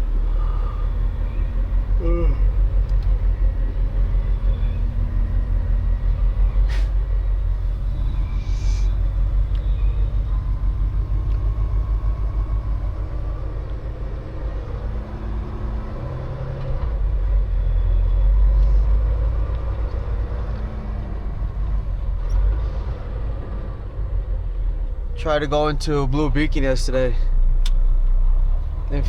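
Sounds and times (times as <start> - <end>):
truck engine and road rumble: 0.0 - 29.0.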